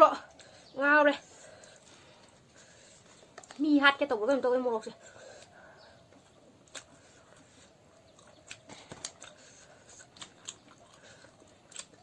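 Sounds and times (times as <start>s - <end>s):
person chewing: 1.4s - 3.6s, 5.0s - 12.0s
wet mouth clicks: 6.2s - 12.0s.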